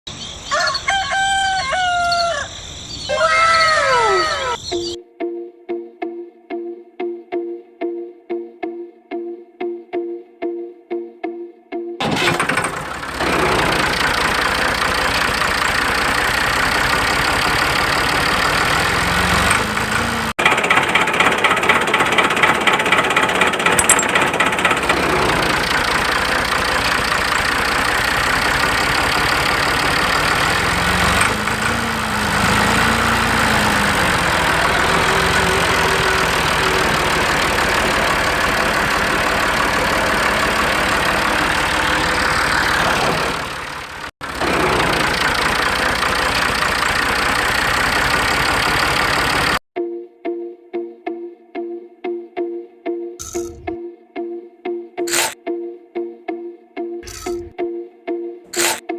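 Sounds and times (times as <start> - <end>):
motor running with chugging pulse: 12.2 - 49.6.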